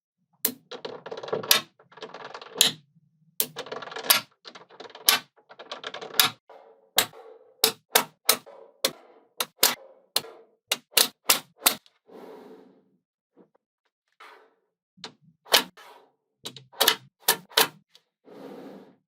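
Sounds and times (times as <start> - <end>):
magnetic balls snapping together: 9.4 - 9.8.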